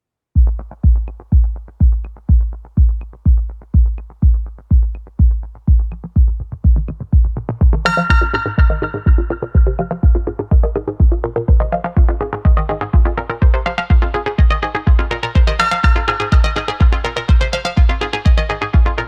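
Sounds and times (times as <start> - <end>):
hi-hat ticks: 0.4 - 10.9
kick drum: 0.4 - 19.0
synth chords: 0.4 - 19.0.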